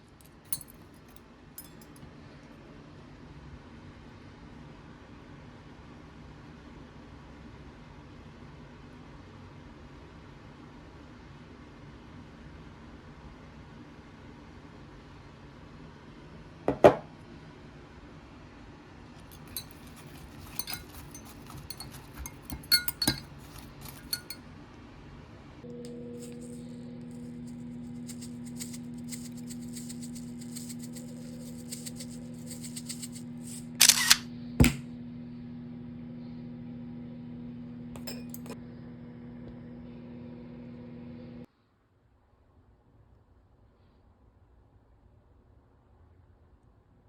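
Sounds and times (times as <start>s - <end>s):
kitchenware clinking: 0.5s - 2.0s, 19.2s - 24.4s, 38.0s - 38.6s
electric kitchen appliance humming: 25.6s - 41.5s.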